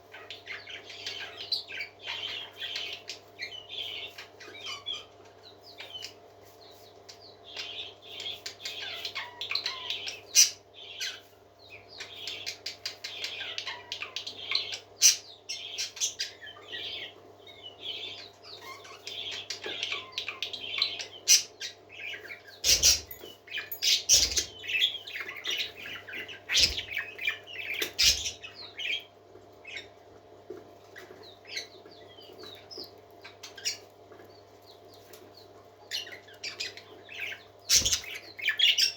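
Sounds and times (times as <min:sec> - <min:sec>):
parakeets chattering and warbling: 0:00.0 - 0:38.9.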